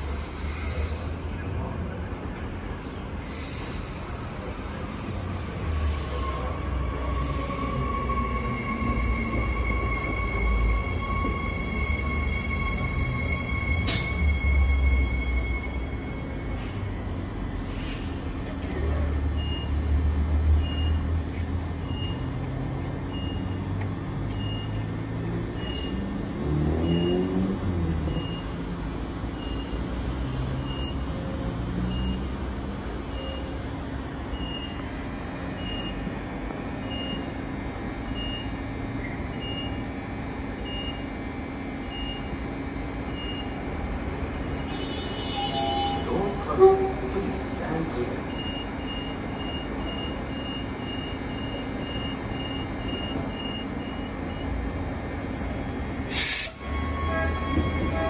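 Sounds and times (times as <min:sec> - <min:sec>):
electric train rumbling: 0:00.0 - 0:58.0.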